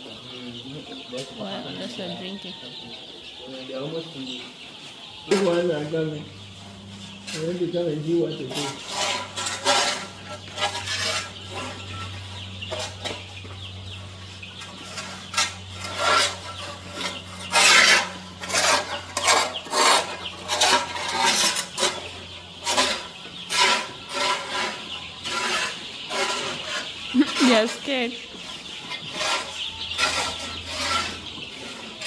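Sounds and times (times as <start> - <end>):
chicks peeping faintly: 0.0 - 32.0
scratchy scraping and rustling: 6.6 - 32.0.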